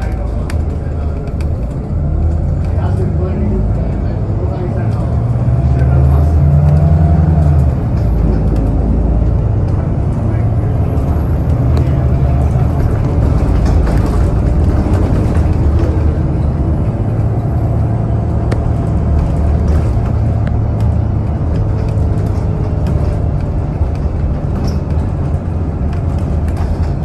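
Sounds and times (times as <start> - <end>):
bus engine droning: 0.0 - 27.0
light rattles: 7.4 - 27.0.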